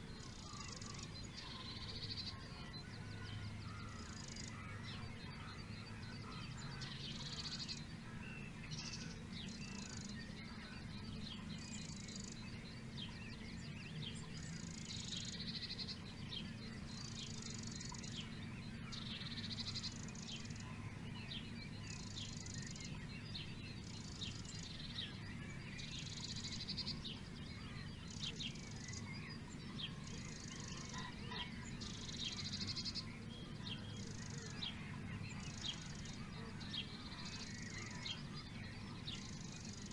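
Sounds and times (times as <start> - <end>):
birds chirping: 0.0 - 39.9
steady low hum: 0.0 - 39.9.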